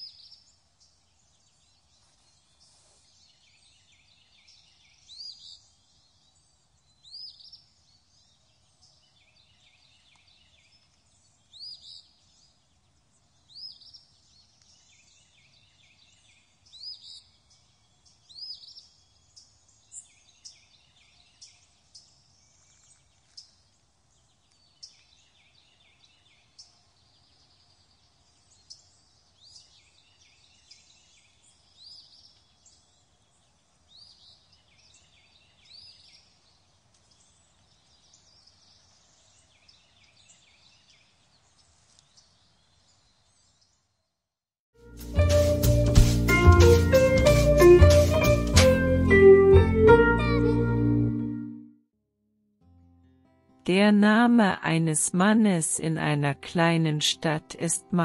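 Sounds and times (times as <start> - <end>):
faint birdsong: 0.0 - 44.2.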